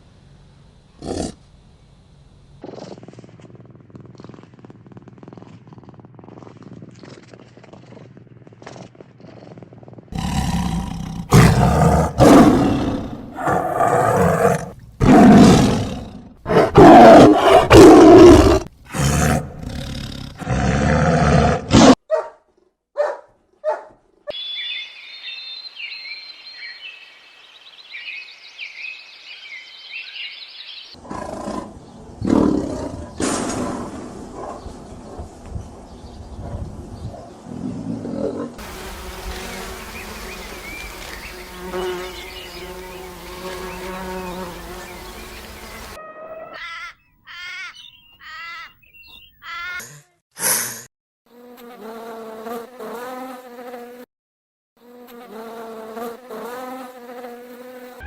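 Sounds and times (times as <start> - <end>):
big cat roaring: 1.0 - 1.4, 10.1 - 22.0, 31.0 - 34.1, 37.5 - 38.6.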